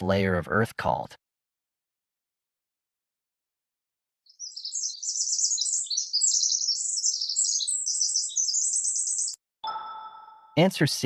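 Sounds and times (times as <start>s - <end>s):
songbirds chirping trills: 4.3s - 9.4s.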